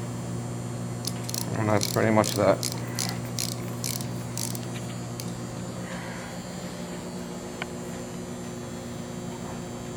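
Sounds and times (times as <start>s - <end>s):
low electrical hum: 0.0s - 9.9s
ratchet clicking: 1.0s - 5.4s.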